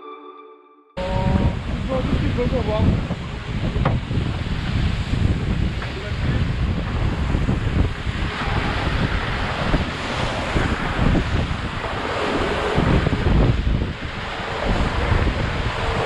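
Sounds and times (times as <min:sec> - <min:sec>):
sea water rushing: 0:01.0 - 0:16.0
wind buffeting microphone: 0:01.0 - 0:16.0.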